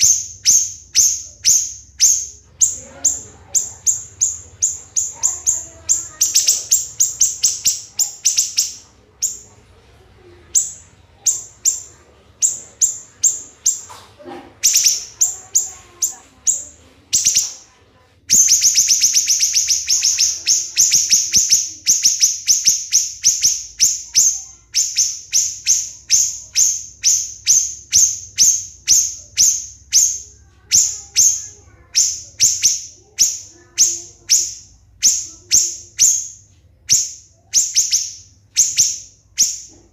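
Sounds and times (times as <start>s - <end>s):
songbird singing sharp notes: 0.0s - 9.4s, 18.3s - 39.8s.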